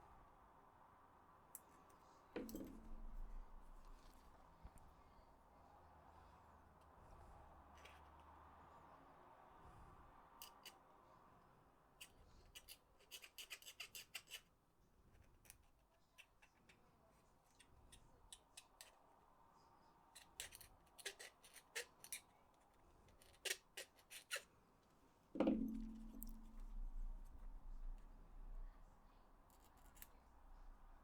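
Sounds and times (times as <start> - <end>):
knock with low ring: 25.4 - 26.9.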